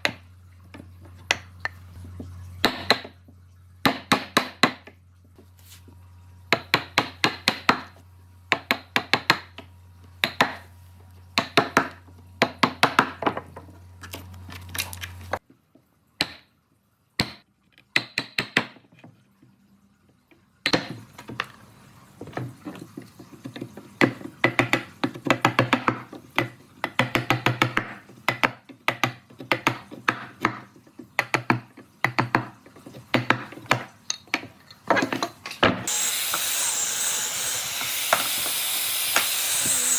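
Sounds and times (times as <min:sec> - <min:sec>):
taps and knocks on wood: 0:22.2 - 0:35.9.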